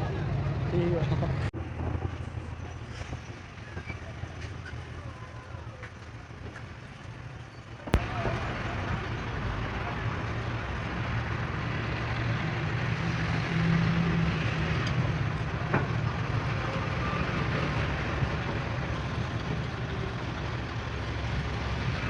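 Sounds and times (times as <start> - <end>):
truck engine idling: 0.0 - 13.0, 15.0 - 22.0.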